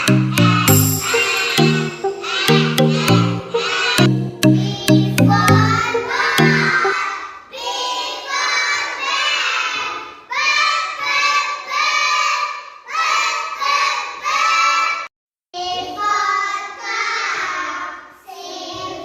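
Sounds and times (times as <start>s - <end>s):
backing music with low beat: 0.0s - 7.0s
children singing together: 0.0s - 15.0s, 15.6s - 19.0s.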